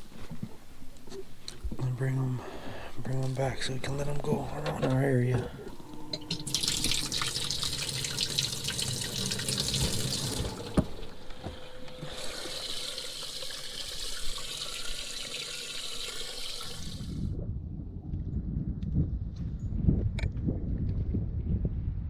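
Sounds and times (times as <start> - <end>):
water splashing into a tank: 5.3 - 17.2.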